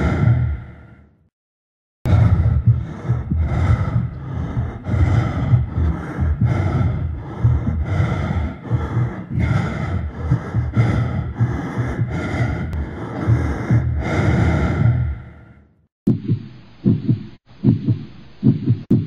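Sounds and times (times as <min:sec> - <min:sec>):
person panting heavily: 0:00.0 - 0:01.2, 0:02.1 - 0:15.8.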